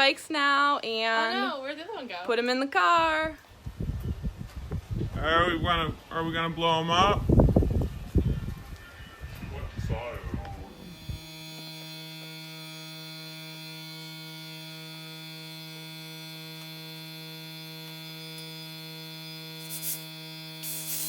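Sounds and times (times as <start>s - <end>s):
electric air pump humming: 10.7s - 21.0s
air hissing: 19.6s - 21.0s.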